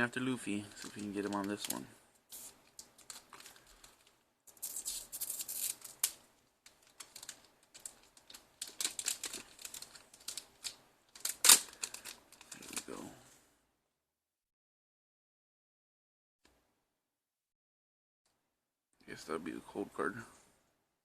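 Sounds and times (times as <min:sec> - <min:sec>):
foil pack crinkling and rustling: 0:00.5 - 0:13.0.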